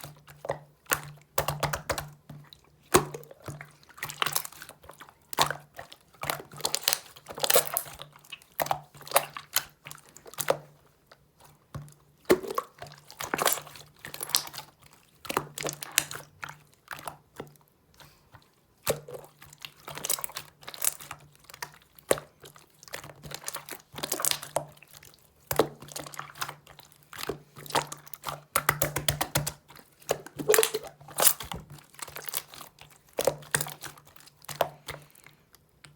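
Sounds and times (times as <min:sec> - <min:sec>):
slime squeezed by hand: 0:25.8 - 0:35.0.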